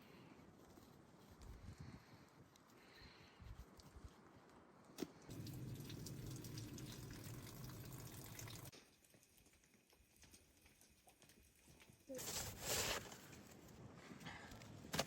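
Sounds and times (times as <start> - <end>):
liquid pouring: 5.3 - 8.7.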